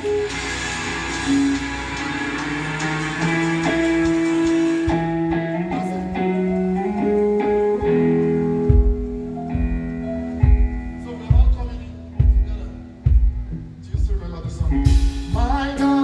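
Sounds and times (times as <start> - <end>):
band playing instrumental: 0.0 - 16.0
guitar notes: 0.0 - 16.0
low drum thumps: 8.6 - 15.8.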